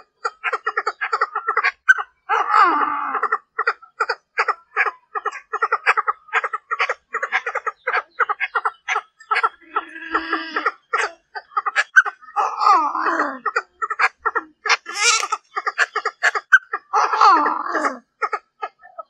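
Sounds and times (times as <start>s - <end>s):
francolin calling: 14.6s - 17.0s.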